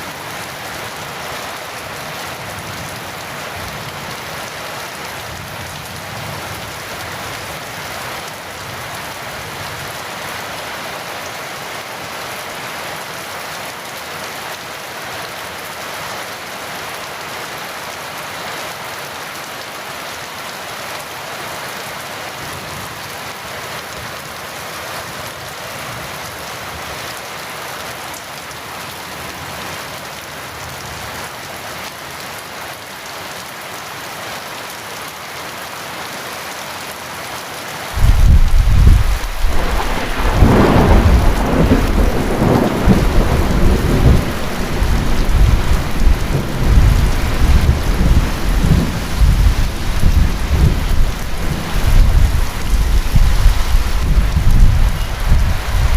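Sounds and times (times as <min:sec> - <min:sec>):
heavy rain falling: 0:00.0 - 0:55.9
thunderclap and deep rumble: 0:38.0 - 0:55.9.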